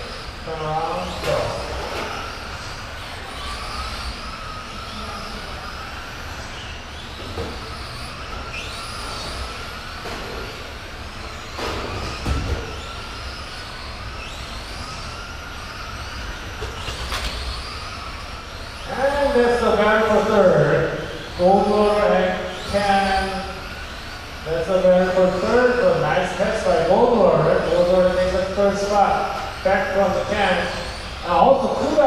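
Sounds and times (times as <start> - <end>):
rc truck motors whining: 0.0 - 32.0.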